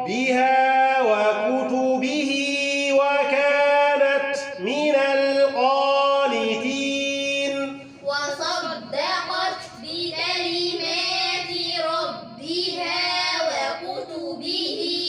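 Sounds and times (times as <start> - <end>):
man chanting melodic recitation: 0.0 - 8.0.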